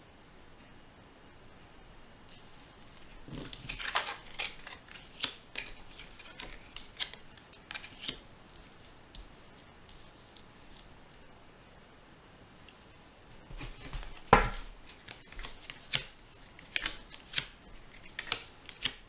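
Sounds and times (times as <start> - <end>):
cards shuffling: 2.3 - 10.9, 13.5 - 19.0.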